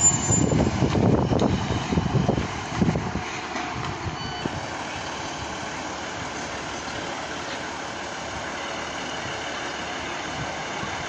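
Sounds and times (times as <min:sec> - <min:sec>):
high wheel squeal: 0:00.0 - 0:00.8
train engine and wheel noise: 0:00.0 - 0:11.0.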